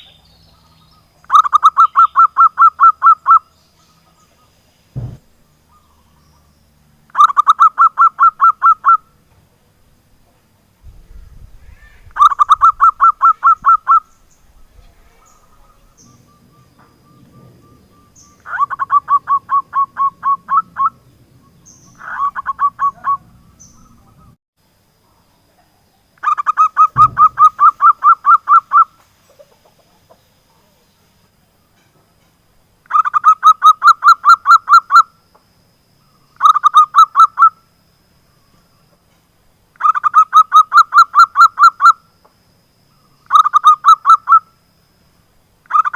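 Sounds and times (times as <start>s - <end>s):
dove cooing: 11.6s - 21.1s, 21.7s - 24.4s, 26.2s - 30.7s.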